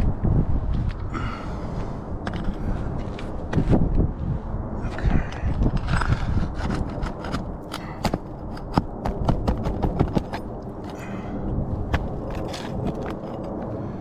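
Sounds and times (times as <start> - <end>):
hand tools on roof shingles: 5.8 - 11.3, 11.9 - 13.6.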